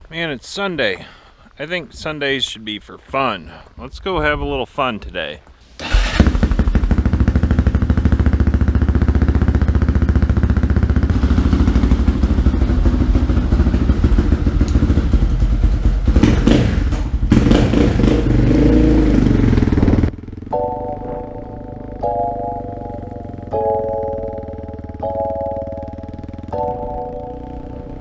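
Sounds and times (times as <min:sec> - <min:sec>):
off-road vehicle engine running: 0:05.8 - 0:28.0.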